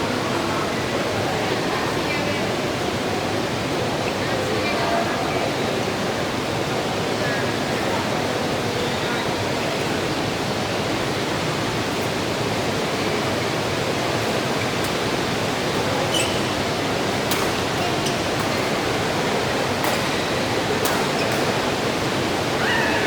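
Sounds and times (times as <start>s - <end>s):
heavy rain falling: 12.5s - 23.0s.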